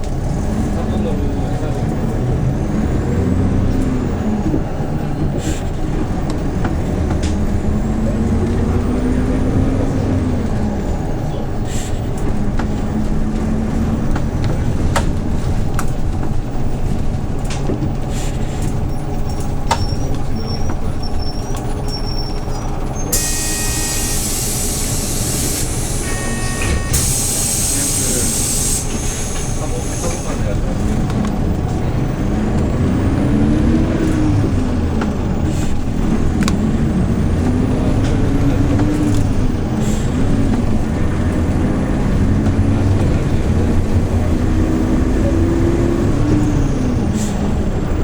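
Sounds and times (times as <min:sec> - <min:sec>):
bus engine running: 0:00.0 - 0:48.0
hiss of compressed air: 0:23.2 - 0:30.3.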